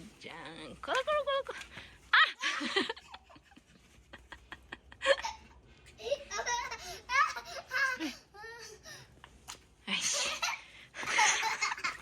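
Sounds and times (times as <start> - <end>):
people laughing: 2.2 - 8.2.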